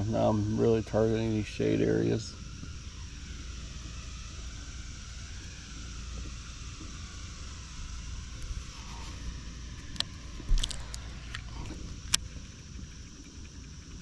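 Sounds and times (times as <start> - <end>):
faint ticks: 9.8 - 14.0.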